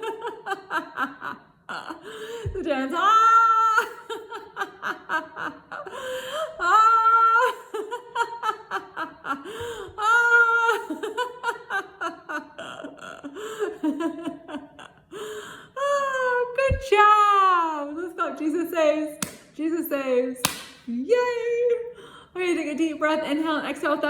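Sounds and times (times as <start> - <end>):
woman laughing: 0.0 - 16.8.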